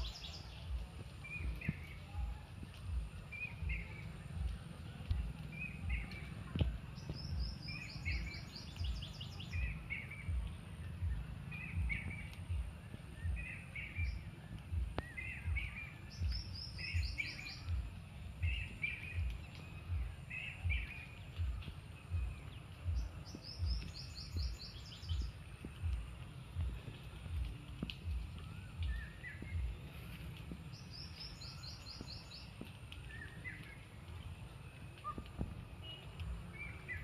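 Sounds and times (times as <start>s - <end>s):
low uneven thumping: 9.6s - 31.4s.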